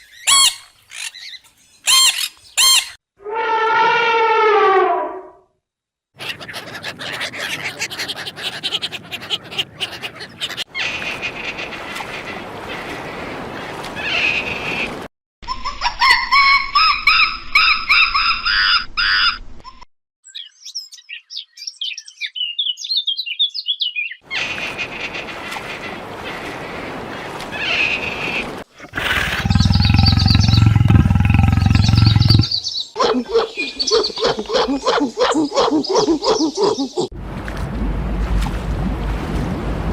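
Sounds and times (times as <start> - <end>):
low-pitched animal call: 3.2 - 5.4, 28.8 - 32.6
bird chirps and calls: 29.0 - 37.1.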